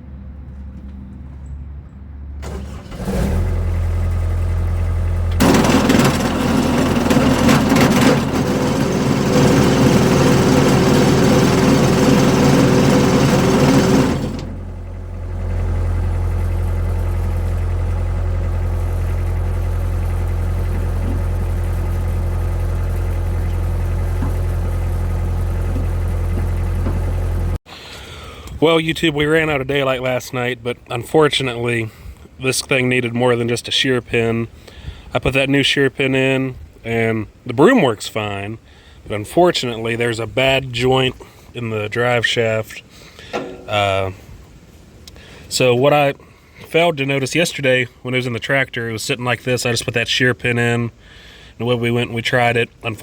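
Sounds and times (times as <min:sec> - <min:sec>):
tractor diesel engine running: 0:02.4 - 0:28.6, 0:38.0 - 0:53.0.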